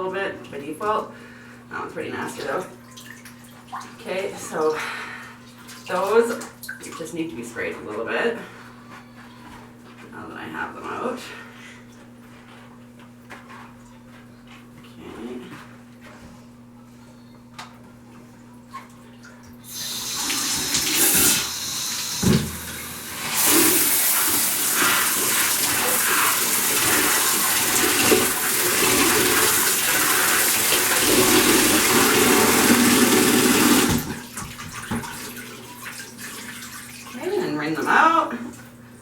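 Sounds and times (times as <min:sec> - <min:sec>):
shower head spraying water: 0:19.7 - 0:34.1.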